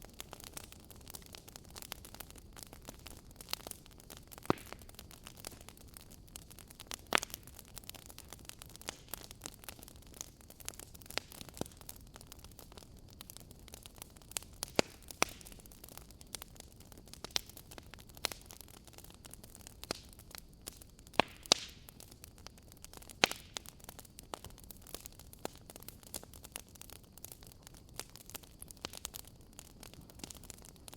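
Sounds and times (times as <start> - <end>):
faint steady hiss: 0.0 - 30.9
fireplace crackling and popping: 0.0 - 30.9.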